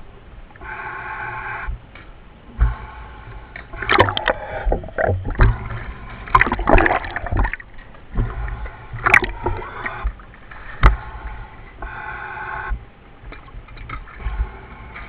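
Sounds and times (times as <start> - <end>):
steady low hum: 0.0 - 15.0
diver breathing underwater: 2.7 - 12.9
exhaust bubbles gurgling: 3.6 - 14.7.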